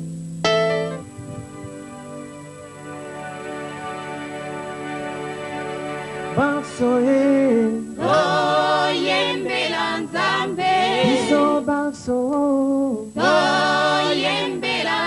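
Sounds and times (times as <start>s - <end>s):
voices singing gospel song: 6.4s - 15.0s.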